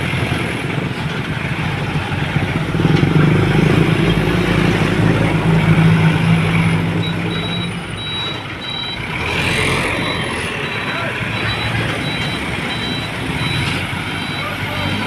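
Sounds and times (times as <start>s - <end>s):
truck diesel engine running: 0.0s - 15.0s
reversing beeper: 6.7s - 15.0s.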